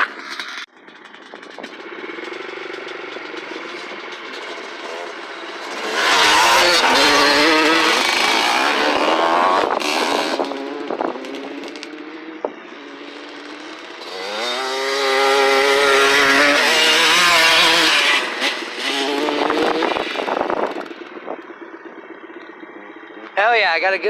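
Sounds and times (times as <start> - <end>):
off-road motorcycle revving: 0.0 - 24.0.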